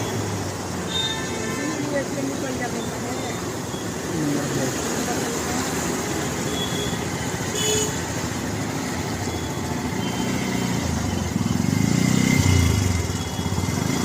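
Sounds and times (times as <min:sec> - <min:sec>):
street traffic: 0:00.0 - 0:14.0
motorcycle passing: 0:08.0 - 0:14.0.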